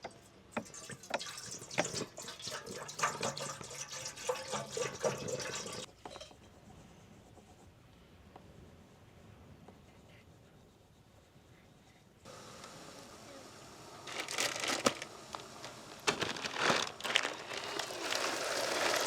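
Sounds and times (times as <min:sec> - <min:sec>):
liquid pouring into container: 0:00.6 - 0:05.9, 0:16.0 - 0:19.0.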